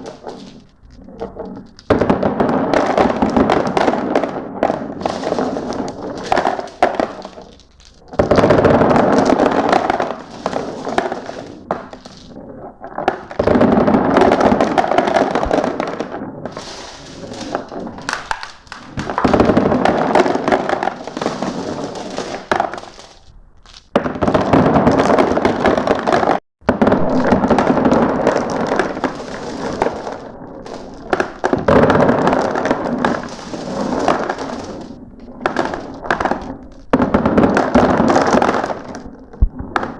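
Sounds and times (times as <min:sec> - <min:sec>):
marbles clattering down a marble run: 0:00.0 - 0:02.2, 0:05.0 - 0:12.4, 0:13.0 - 0:26.4.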